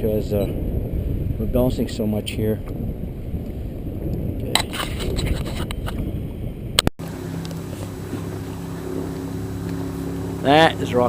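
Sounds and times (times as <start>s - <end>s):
choppy water: 0.0s - 11.0s
wind buffeting microphone: 0.0s - 11.0s
low hum with even tones: 3.4s - 11.0s.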